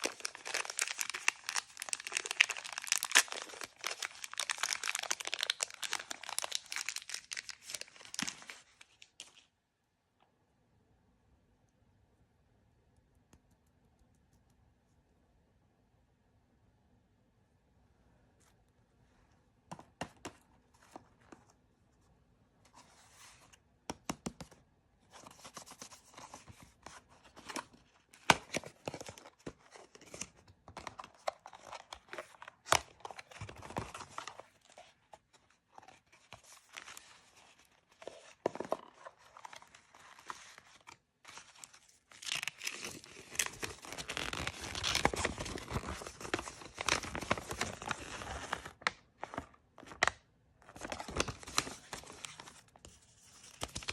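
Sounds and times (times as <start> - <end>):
plastic packaging crinkling: 0.0 - 9.4, 35.7 - 48.8.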